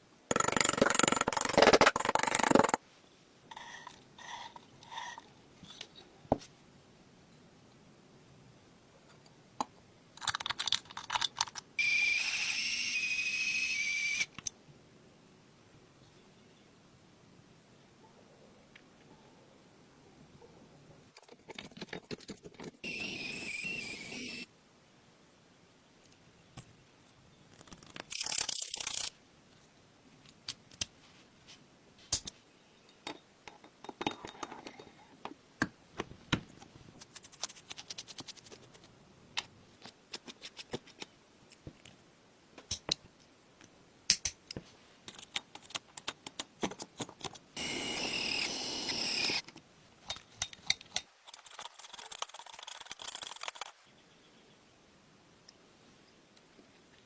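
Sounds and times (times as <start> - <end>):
small metal parts clicking: 27.9 - 29.1.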